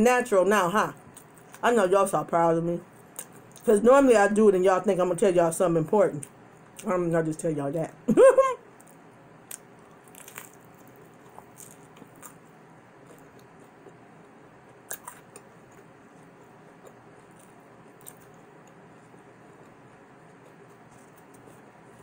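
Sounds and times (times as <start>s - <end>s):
person chewing pizza: 8.8s - 22.0s.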